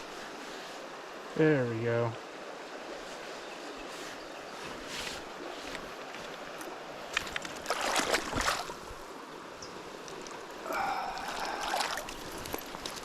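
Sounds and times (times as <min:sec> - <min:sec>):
river water flowing: 0:00.0 - 0:13.0
clicks and splashing: 0:06.6 - 0:08.8, 0:11.1 - 0:13.0.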